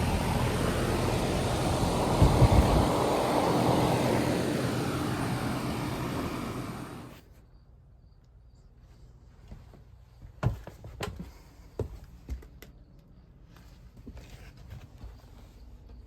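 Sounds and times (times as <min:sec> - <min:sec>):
low steady hum: 0:00.0 - 0:07.2.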